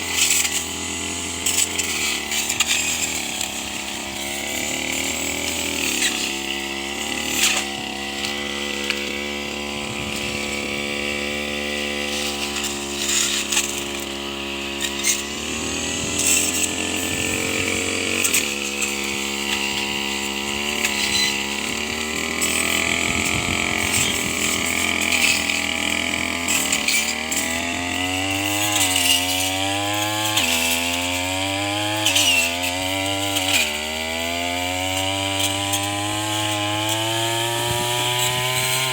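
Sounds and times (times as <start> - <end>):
brush cutter engine at high revs: 0.0 - 38.9
blade striking stalks: 7.2 - 9.2.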